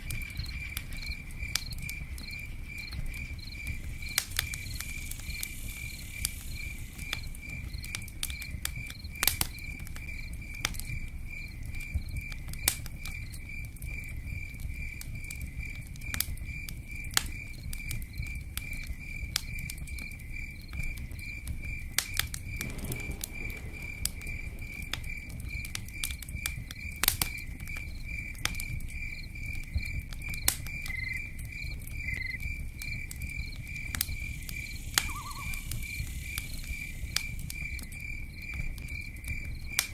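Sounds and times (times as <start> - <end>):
crickets chirping: 0.0 - 12.4, 16.4 - 39.8
campfire crackling and popping: 0.0 - 39.9
low rumble: 22.5 - 27.1.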